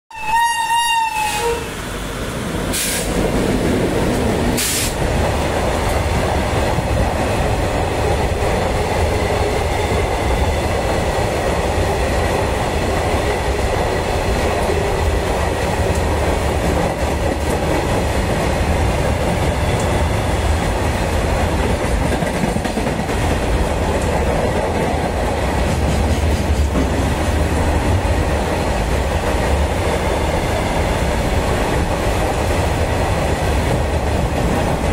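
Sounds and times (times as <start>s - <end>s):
locomotive horn blast: 0.1s - 1.8s
hissing bursts: 2.7s - 3.3s, 4.5s - 5.1s.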